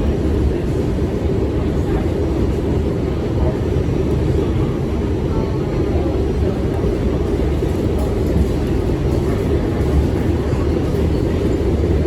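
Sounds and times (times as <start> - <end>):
subway train rumbling on track: 0.0 - 12.0.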